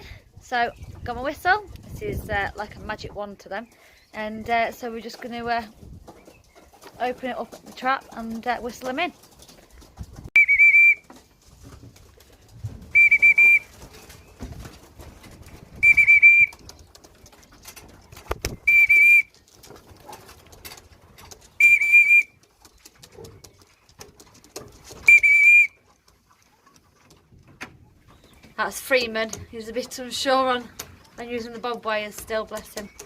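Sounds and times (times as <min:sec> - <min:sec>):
hand whistle trilling blasts: 0:10.4 - 0:11.1, 0:12.9 - 0:13.7, 0:15.8 - 0:16.5, 0:18.6 - 0:19.3, 0:21.6 - 0:22.4, 0:25.0 - 0:25.8.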